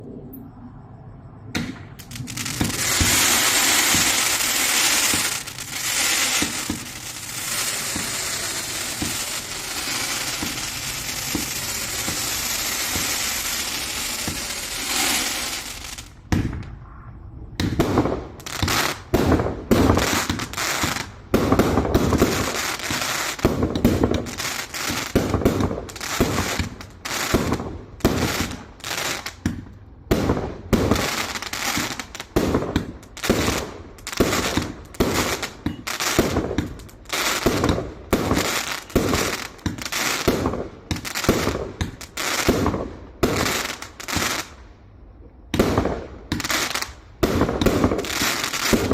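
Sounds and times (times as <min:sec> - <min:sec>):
firework loud bangs: 0:01.5 - 0:16.8, 0:45.5 - 0:48.9
firework crackling hiss: 0:01.7 - 0:16.7, 0:17.6 - 0:44.7, 0:45.6 - 0:48.9.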